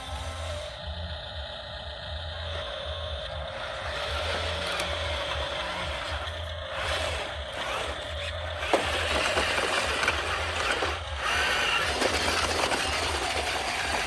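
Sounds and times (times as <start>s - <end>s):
high motor whine: 0.0s - 14.0s
toy motors whirring: 0.0s - 14.0s.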